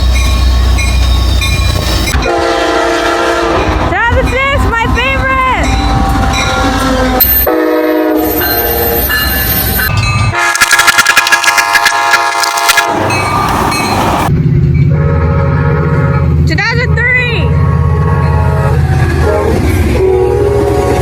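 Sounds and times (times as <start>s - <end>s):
diesel locomotive engine rumbling: 0.0s - 21.0s
locomotive air horns: 2.1s - 3.8s, 5.7s - 9.0s, 10.3s - 13.4s, 14.9s - 16.3s, 17.4s - 21.0s.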